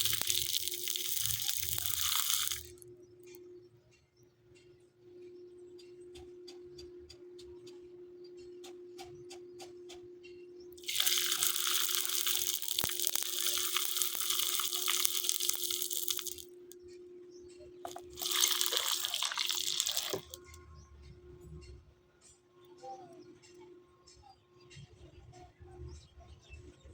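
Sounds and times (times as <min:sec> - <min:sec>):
loud steady hissing: 0:00.0 - 0:02.7, 0:10.8 - 0:16.4.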